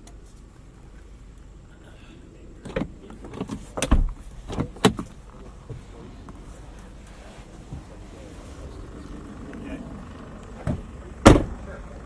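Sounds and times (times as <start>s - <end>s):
steady low rumble: 0.0s - 12.0s
knocks and clunks: 2.6s - 6.4s, 10.5s - 11.6s
heavy thump: 10.6s - 11.6s.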